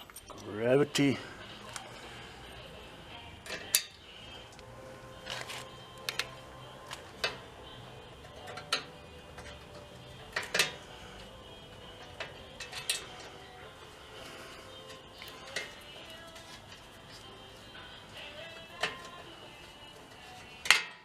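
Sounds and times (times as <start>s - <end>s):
metal tools clinking: 0.0s - 0.6s, 12.2s - 13.6s
faint background music: 0.0s - 21.0s.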